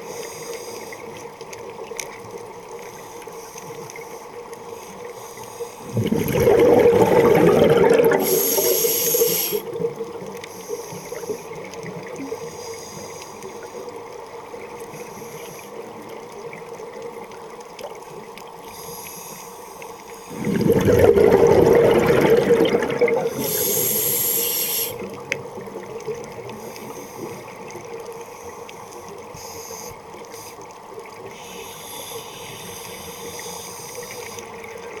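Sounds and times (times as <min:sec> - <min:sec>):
water bubbling and gurgling: 0:05.7 - 0:18.7, 0:19.8 - 0:29.3
brief hiss: 0:08.2 - 0:09.7, 0:23.3 - 0:25.1.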